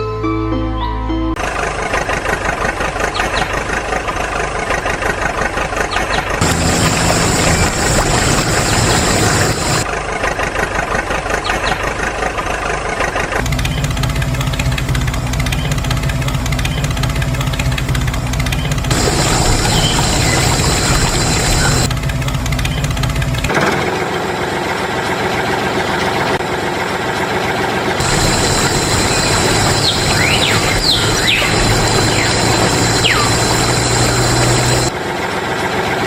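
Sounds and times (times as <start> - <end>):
motor running: 6.4 - 9.8, 13.4 - 21.9, 28.0 - 35.0.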